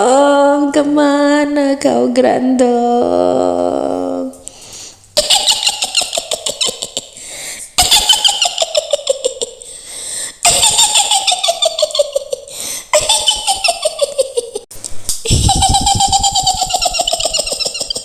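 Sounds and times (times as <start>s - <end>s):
high witch cackle: 5.2s - 7.2s, 7.8s - 9.7s, 10.4s - 18.0s.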